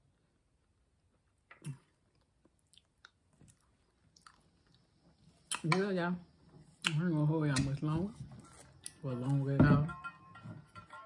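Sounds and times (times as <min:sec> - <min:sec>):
person chewing food: 0:01.2 - 0:05.8.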